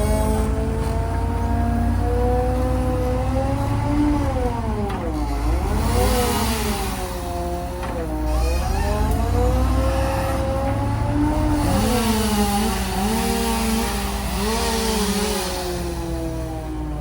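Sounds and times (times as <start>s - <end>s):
engines revving: 0.0s - 16.8s.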